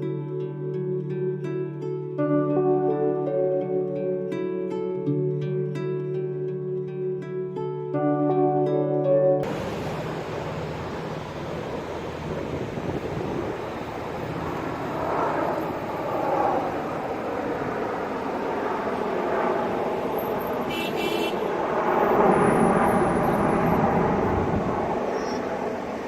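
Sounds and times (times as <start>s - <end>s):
jet aircraft flying past: 9.4s - 26.0s.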